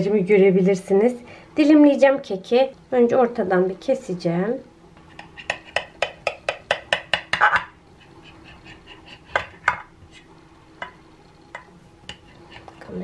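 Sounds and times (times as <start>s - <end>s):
knife knocking on pan: 5.4s - 7.8s, 9.3s - 9.9s.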